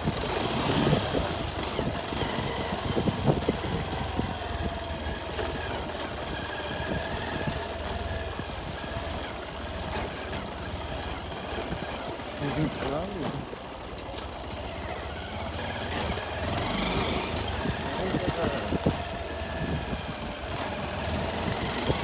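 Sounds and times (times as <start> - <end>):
motorcycle engine running: 0.0 - 22.0
knocks and rattles: 5.2 - 8.3, 8.9 - 19.1.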